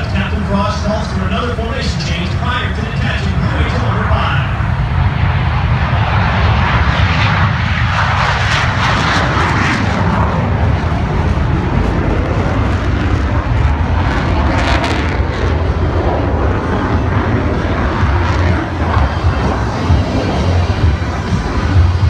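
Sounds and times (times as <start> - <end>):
aircraft engine rumble: 0.0 - 22.0.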